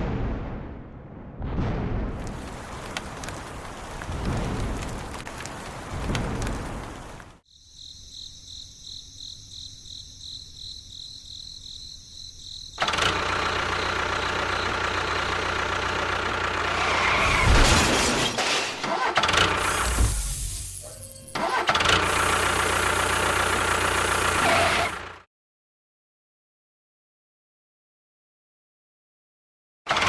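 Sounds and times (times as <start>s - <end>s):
small motor running: 19.4s - 25.2s.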